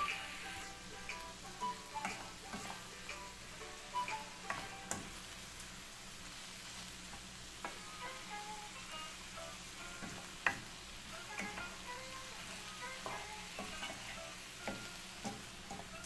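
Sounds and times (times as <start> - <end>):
food sizzling in a pan: 0.0 - 16.0
wooden spoon scraping a pan: 2.0 - 3.0, 12.5 - 15.9.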